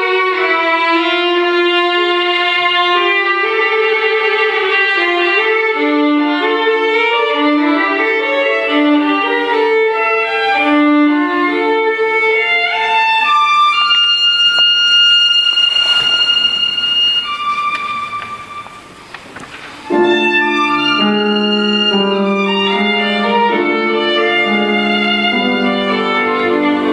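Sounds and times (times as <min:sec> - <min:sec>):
violin melody: 0:00.0 - 0:26.9.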